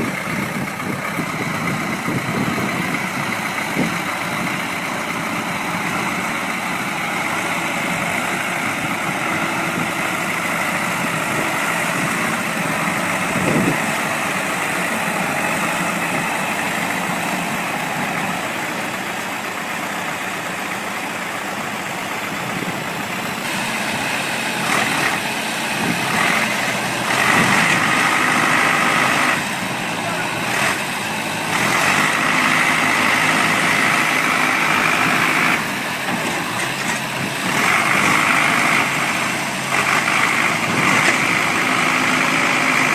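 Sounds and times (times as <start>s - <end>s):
large vehicle engine running: 0.0s - 42.9s.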